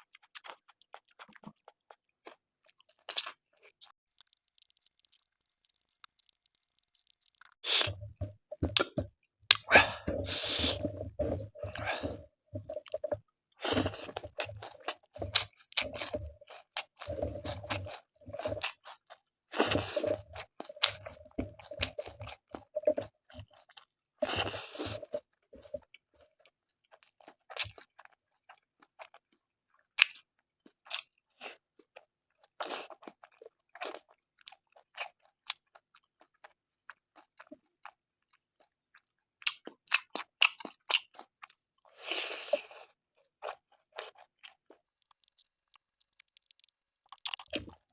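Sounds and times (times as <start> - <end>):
person chewing and crunching: 0.0 - 47.9
mouth clicks and smacks: 4.0 - 10.8, 44.7 - 47.9.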